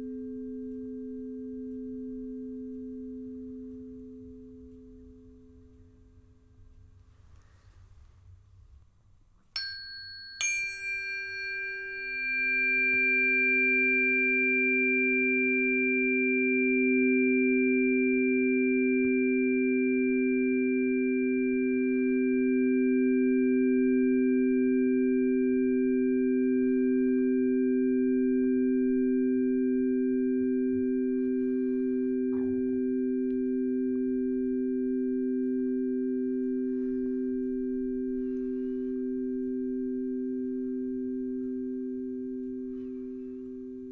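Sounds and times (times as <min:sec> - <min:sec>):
high ringing tones: 0:09.6 - 0:15.9
low pure pulsing tones: 0:10.8 - 0:43.9.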